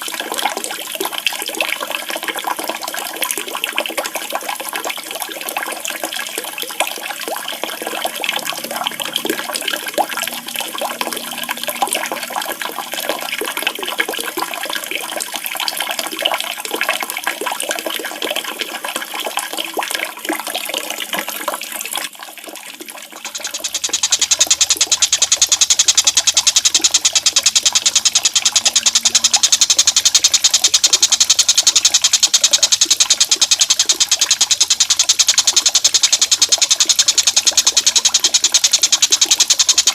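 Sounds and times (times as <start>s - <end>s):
water splashing and trickling: 0.0s - 39.9s
fast high-pitched animal trill: 23.2s - 39.9s.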